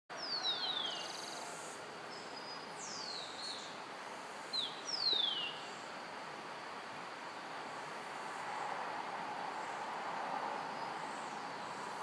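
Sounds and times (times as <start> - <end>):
steady background hiss: 0.1 - 12.0
bird trill: 0.2 - 1.6
birds whistling downward notes: 0.2 - 3.7, 4.5 - 5.7.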